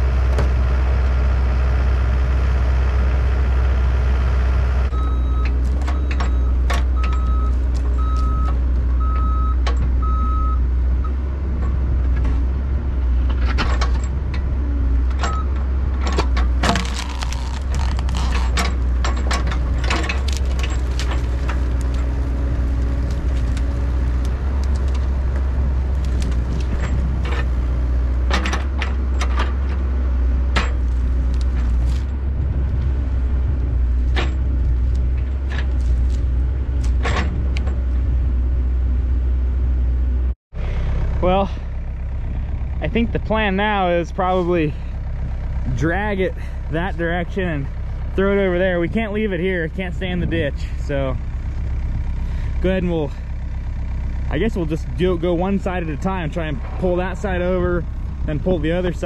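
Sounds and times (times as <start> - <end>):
excavator engine running: 0.0 - 59.0
metal clanks and knocks: 5.4 - 10.0, 13.2 - 22.2, 24.6 - 27.6, 28.2 - 29.9, 30.5 - 32.2, 34.0 - 36.2, 36.8 - 37.9.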